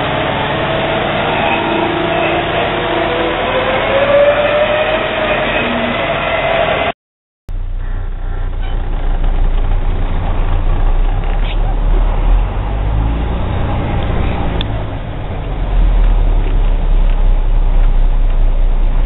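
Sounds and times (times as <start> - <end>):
road noise: 0.0 - 6.9, 7.5 - 19.0
truck diesel engine: 0.0 - 19.0.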